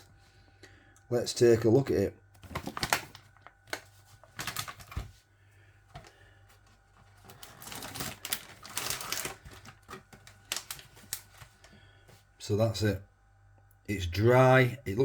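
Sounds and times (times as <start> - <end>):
packaging clicking and crinkling: 2.4 - 5.1, 6.0 - 11.7.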